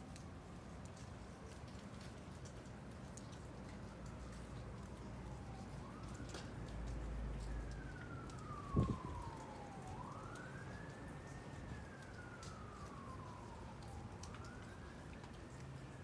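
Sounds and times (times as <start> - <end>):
siren wailing: 7.3 - 15.7.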